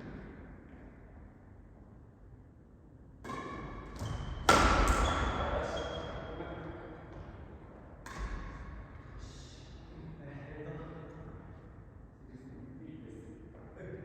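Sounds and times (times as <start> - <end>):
racket hitting shuttlecock: 3.2 - 5.6, 8.0 - 8.7.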